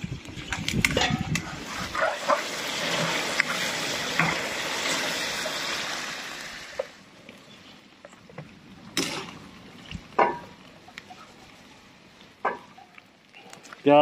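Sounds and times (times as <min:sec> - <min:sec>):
chicken sizzling in hot oil: 0:01.6 - 0:07.0.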